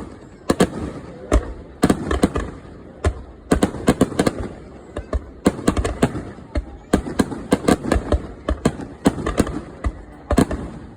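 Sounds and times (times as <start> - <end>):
fireworks booming and cracking: 0.0 - 10.9.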